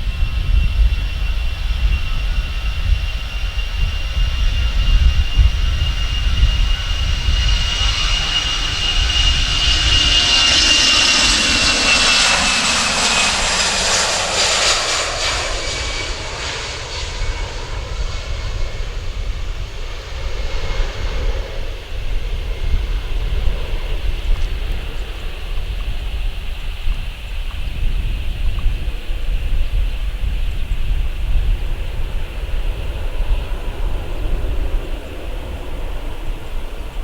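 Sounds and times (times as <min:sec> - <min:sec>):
jet airliner passing: 0:00.0 - 0:37.0.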